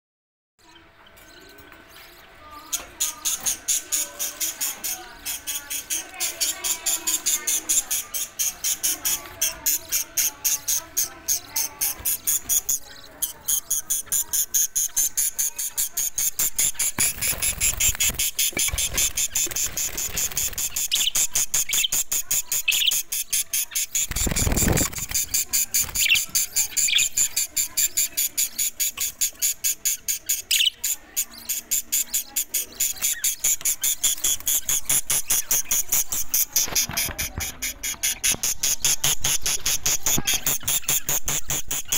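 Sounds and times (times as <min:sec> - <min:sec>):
budgerigars chattering: 0:00.6 - 0:41.9.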